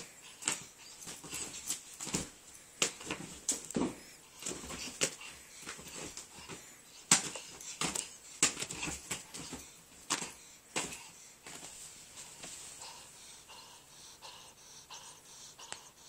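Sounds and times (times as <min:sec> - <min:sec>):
cat breathing wheezily: 0:12.6 - 0:16.0.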